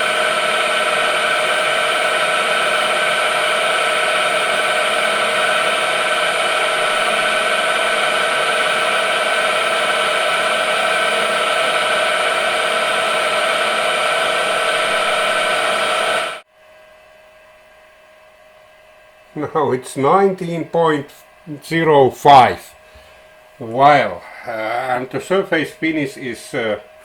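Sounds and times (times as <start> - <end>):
lathe cutting noise: 0.0 - 16.4.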